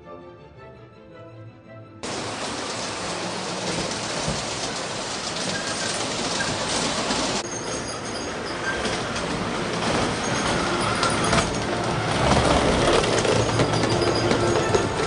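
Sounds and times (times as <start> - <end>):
model train running: 2.0 - 15.0
wheels clicking over rail joints: 2.0 - 15.0.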